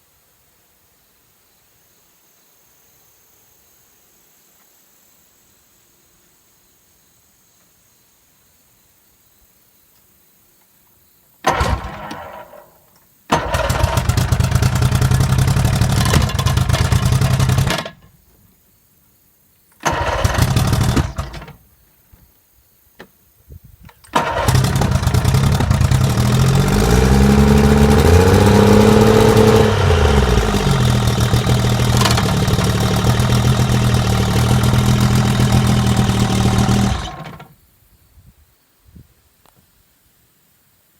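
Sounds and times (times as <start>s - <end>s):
outboard motor starting and running: 11.5s - 12.6s, 13.3s - 18.0s, 19.8s - 21.6s, 24.1s - 37.5s.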